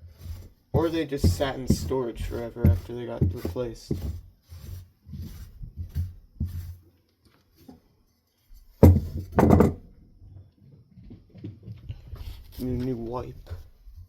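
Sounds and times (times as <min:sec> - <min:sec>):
handling noises on work surface: 0:00.0 - 0:09.9, 0:11.0 - 0:14.0
metal part thunk and knocks: 0:08.8 - 0:10.0.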